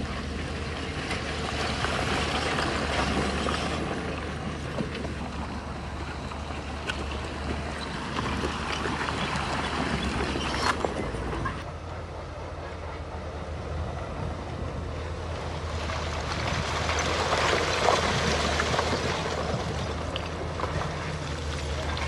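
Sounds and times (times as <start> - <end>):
diesel machinery running: 0.0 - 22.0.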